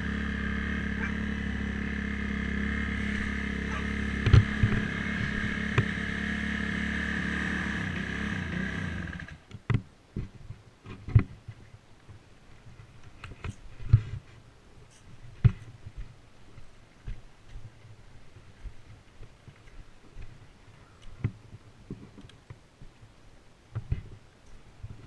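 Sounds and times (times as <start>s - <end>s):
dirt bike engine running: 0.0s - 9.5s.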